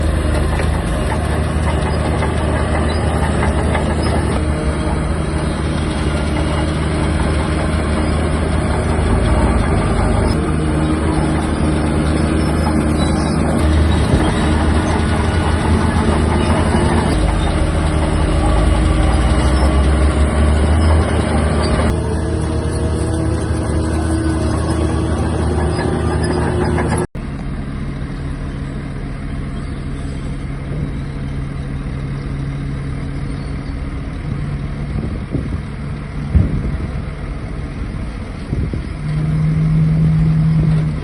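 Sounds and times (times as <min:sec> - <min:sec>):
mechanical clatter: 0:00.0 - 0:27.1
bulldozer diesel engine running: 0:00.0 - 0:41.0.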